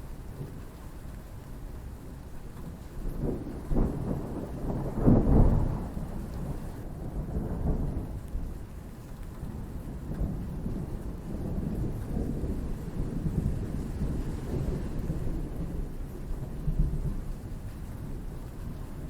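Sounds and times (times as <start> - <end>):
steady rain: 0.0 - 19.0
thunder rumbling: 3.2 - 8.3, 9.9 - 19.0.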